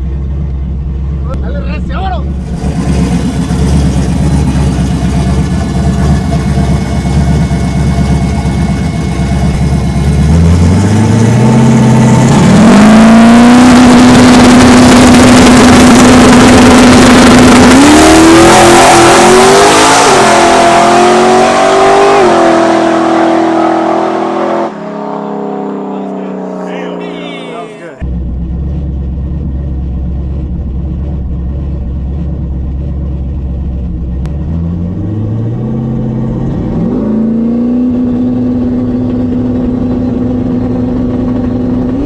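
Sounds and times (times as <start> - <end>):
truck engine revving: 2.2 - 28.0.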